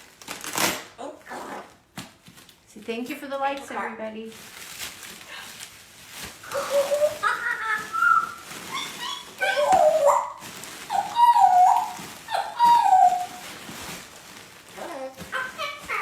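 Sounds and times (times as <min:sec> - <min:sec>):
parrot whistle-like calls: 0:06.5 - 0:13.4.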